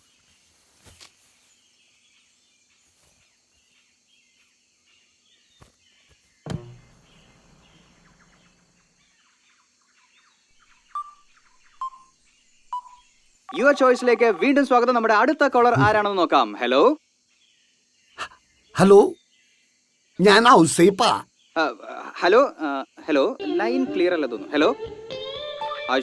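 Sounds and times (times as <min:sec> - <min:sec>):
faint bird chirps: 0:05.3 - 0:14.7
single knock: 0:06.5 - 0:07.0.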